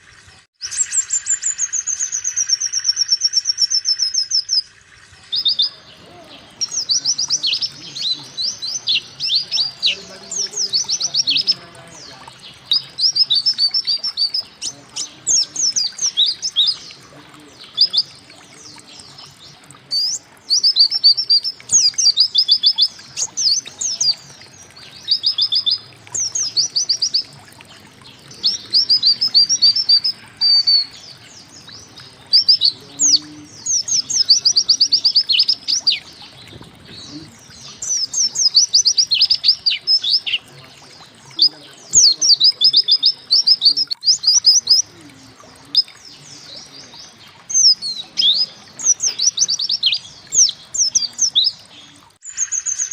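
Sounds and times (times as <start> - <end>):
bird singing rapid notes: 0.6 - 52.9.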